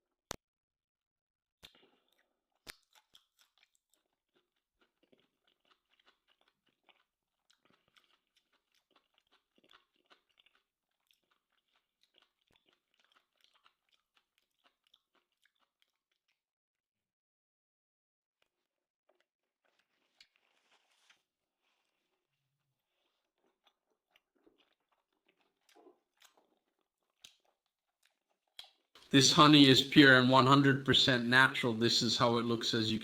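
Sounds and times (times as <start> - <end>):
person chewing food: 1.6 - 16.5, 18.4 - 32.4.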